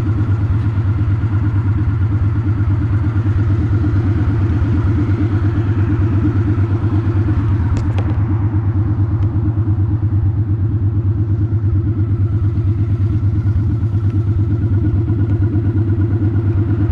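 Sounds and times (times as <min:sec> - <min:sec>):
motorcycle engine running steadily: 0:00.0 - 0:16.9.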